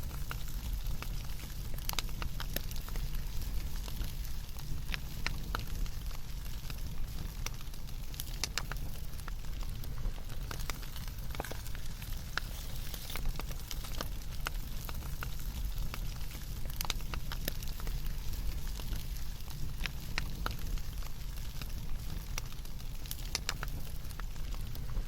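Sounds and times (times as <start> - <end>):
low fire rumble: 0.0 - 25.0
wood fire crackling: 0.0 - 25.0.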